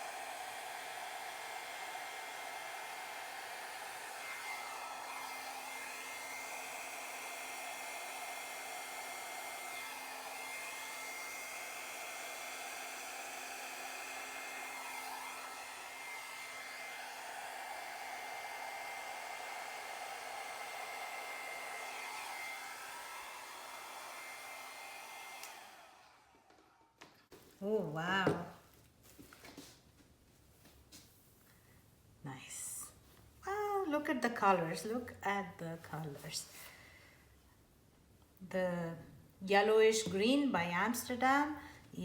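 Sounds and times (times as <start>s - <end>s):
hair dryer blowing: 0.0s - 27.1s, 39.6s - 42.0s.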